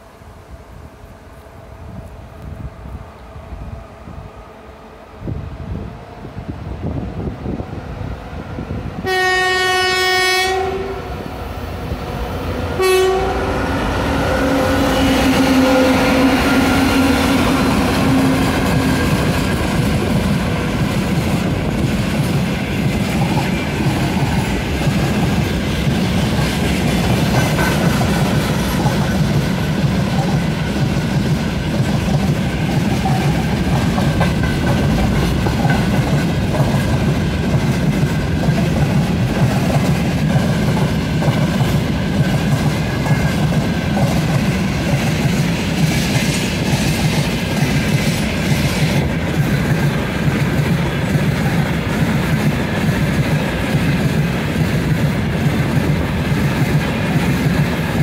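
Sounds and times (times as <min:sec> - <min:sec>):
locomotive air horn blasts: 0:09.0 - 0:11.2, 0:12.6 - 0:17.5
wheels clacking over rail joints: 0:15.2 - 0:58.0.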